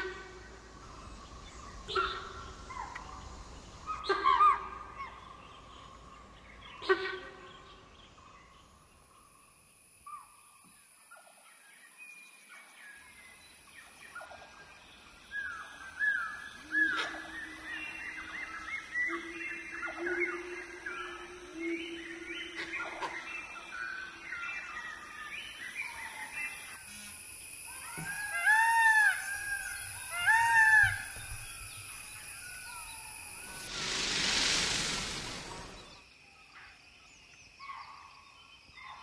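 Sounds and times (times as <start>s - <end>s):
thin high whine: 28.9s - 36.0s.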